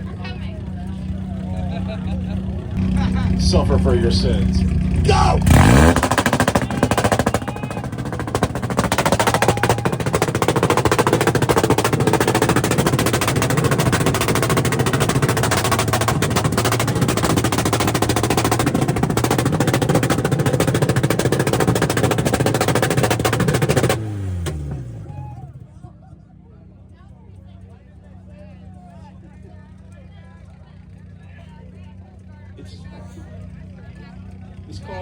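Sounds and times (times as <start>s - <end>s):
engines at rev limiter: 0.0s - 35.0s
exhaust pops crackling: 2.3s - 25.0s.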